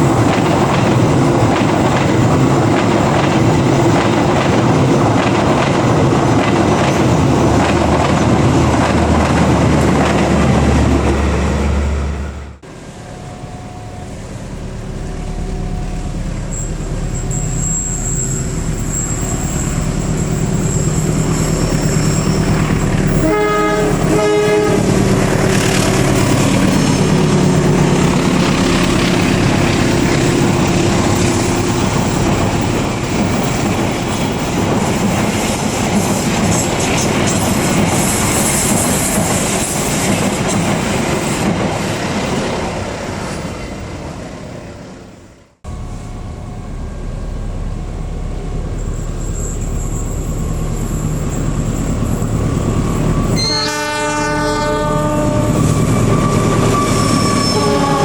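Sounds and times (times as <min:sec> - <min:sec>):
train passing at speed: 0:00.0 - 0:58.0
train horn blast: 0:23.0 - 0:27.4, 0:53.4 - 0:58.0.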